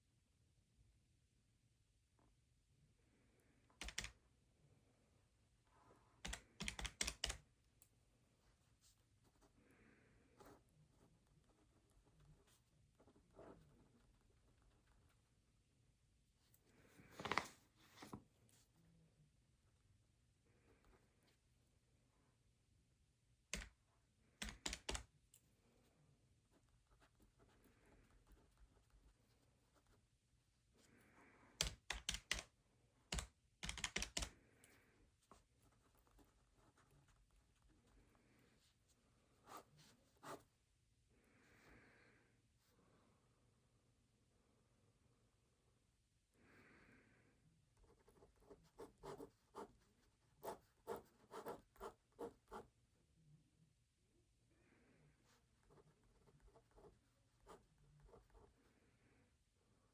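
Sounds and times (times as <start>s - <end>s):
paper rustling: 17.0s - 18.2s
pen writing on paper: 50.4s - 52.6s.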